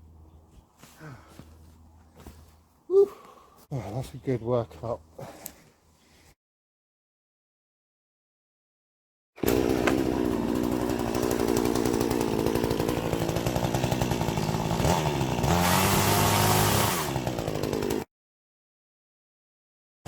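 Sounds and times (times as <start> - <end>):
chainsaw running under load: 9.4 - 18.1.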